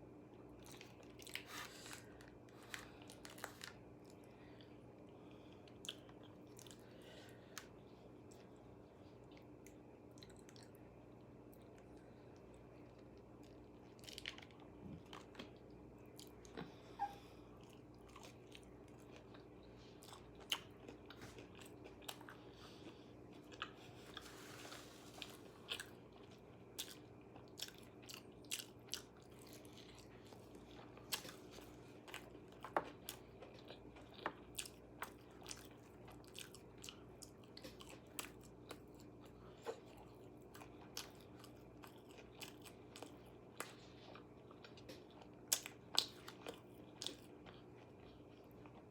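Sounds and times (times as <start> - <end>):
steady low hum: 0.0 - 48.9
chewing: 0.6 - 48.9
crunching fried chicken: 13.2 - 15.6.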